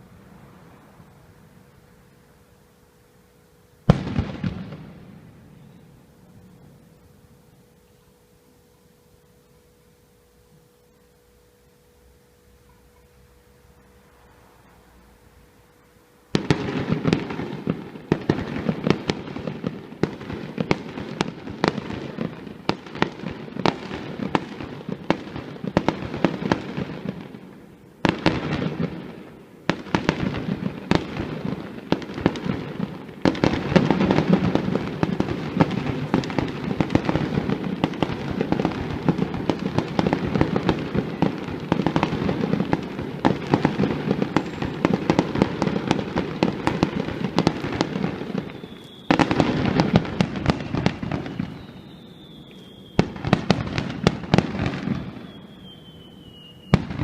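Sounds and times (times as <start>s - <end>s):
aerial fireworks bursting: 3.8s - 6.5s, 16.3s - 57.0s.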